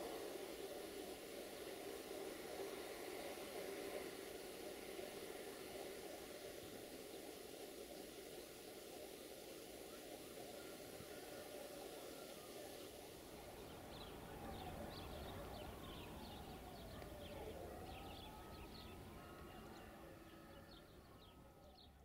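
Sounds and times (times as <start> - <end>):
faint outdoor hiss: 0.0 - 22.0
small birds chirping: 12.7 - 22.0.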